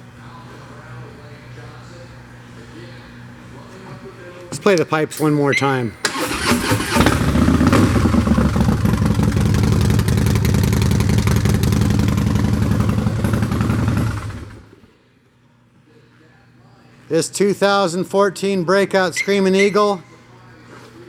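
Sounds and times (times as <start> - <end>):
motorcycle engine running loud: 6.9 - 14.8.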